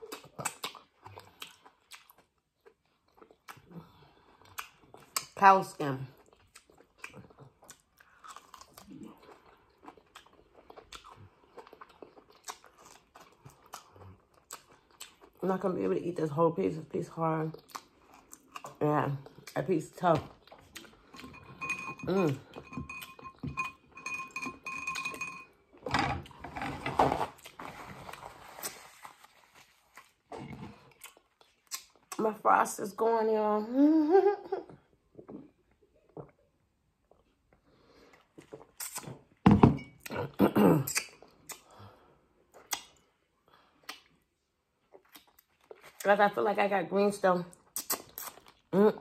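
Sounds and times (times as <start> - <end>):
chewing tough skin: 0.0 - 5.4, 6.2 - 15.4, 27.3 - 32.2, 38.2 - 39.3, 44.9 - 46.1, 47.6 - 48.7.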